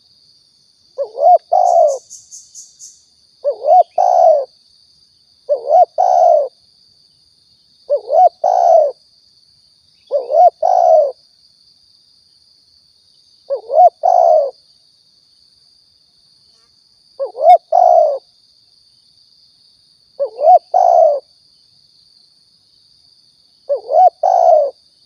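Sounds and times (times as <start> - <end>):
dove cooing: 1.0 - 2.1, 3.4 - 4.5, 5.5 - 6.6, 7.9 - 9.0, 10.1 - 11.2, 13.5 - 14.6, 17.2 - 18.2, 20.2 - 21.3, 23.7 - 24.8.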